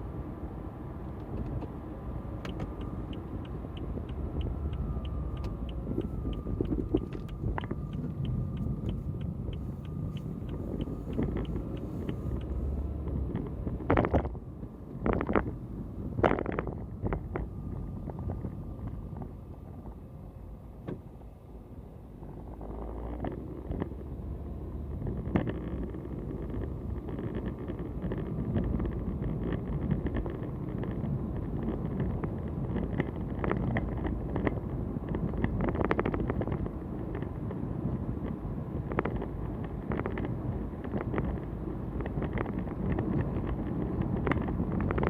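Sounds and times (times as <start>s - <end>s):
road and engine rumble: 0.0s - 45.0s.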